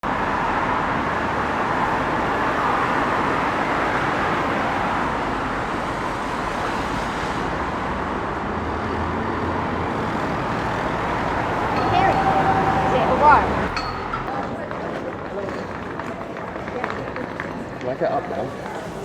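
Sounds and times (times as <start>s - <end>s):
road vehicle rushing: 0.0s - 19.0s.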